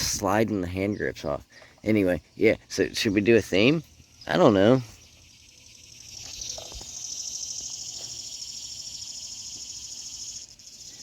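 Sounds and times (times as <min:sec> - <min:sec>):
insect buzzing: 0:03.8 - 0:11.0.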